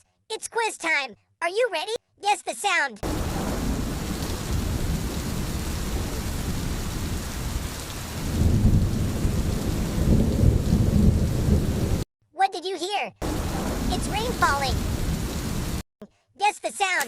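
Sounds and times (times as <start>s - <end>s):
rain falling: 3.0s - 12.0s, 13.2s - 15.8s.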